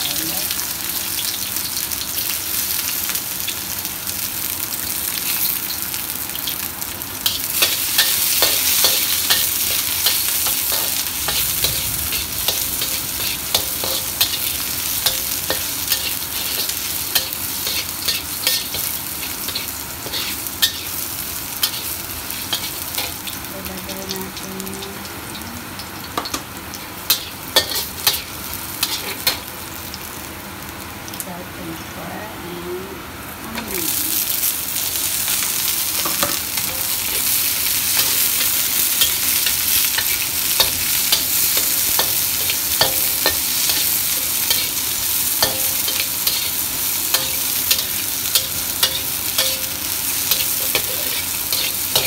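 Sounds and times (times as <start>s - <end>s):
garlic sizzling in hot oil: 0.0s - 31.8s, 33.6s - 52.0s
metal spatula scraping wok: 7.3s - 21.0s, 27.1s - 29.4s, 36.0s - 52.0s.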